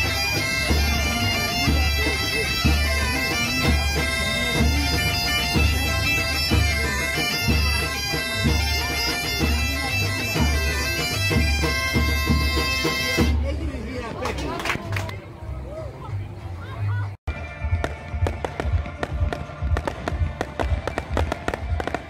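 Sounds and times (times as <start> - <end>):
bagpipe music: 0.0 - 13.6, 17.3 - 22.0
deep drumbeat: 0.0 - 13.6.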